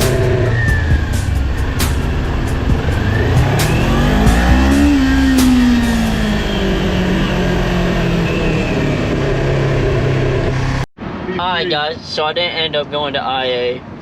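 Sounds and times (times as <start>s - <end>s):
background music: 0.0s - 8.2s
car engine revving: 0.0s - 10.9s.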